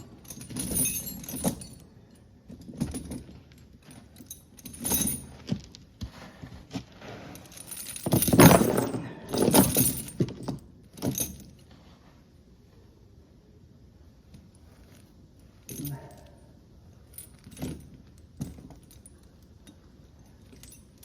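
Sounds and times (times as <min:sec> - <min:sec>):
light metallic jingling: 0:00.0 - 0:05.5, 0:07.4 - 0:11.7, 0:14.5 - 0:21.0
rustling handling noises: 0:00.1 - 0:12.4.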